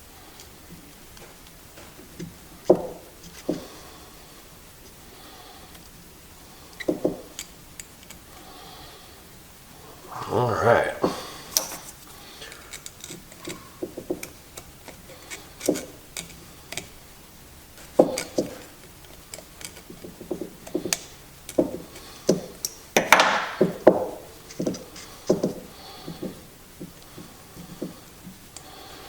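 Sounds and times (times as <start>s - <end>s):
plastic parts clicking and tapping: 12.4s - 17.0s, 17.8s - 27.0s.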